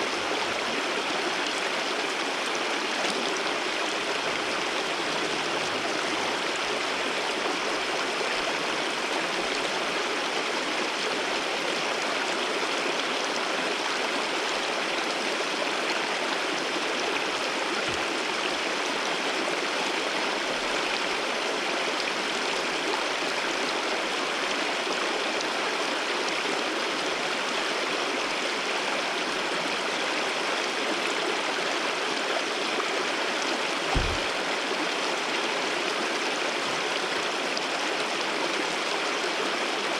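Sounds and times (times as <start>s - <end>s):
waterfall water rushing: 0.0s - 39.9s
low thump: 33.9s - 34.4s.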